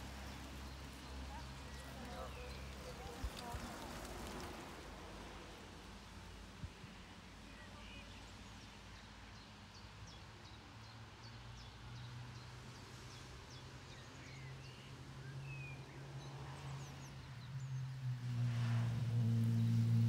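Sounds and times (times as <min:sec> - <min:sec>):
songbirds chirping: 0:00.0 - 0:18.3.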